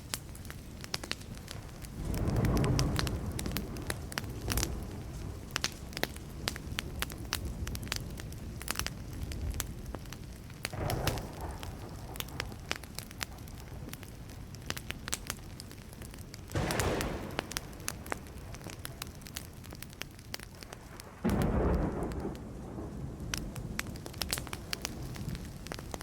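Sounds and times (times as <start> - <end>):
campfire crackling and popping: 0.0 - 26.0
distant thunder: 1.6 - 8.0, 10.7 - 14.2, 16.5 - 19.9, 20.6 - 26.0.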